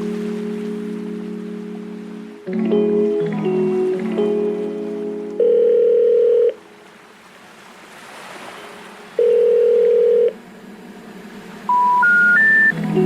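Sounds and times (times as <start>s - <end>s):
faint surf-like noise: 0.0s - 13.0s
steady electronic tones: 11.6s - 13.0s
rising step of beeps: 11.7s - 12.8s.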